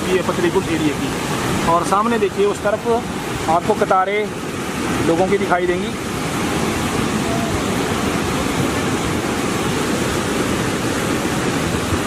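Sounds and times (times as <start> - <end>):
flood water rushing: 0.0 - 12.0.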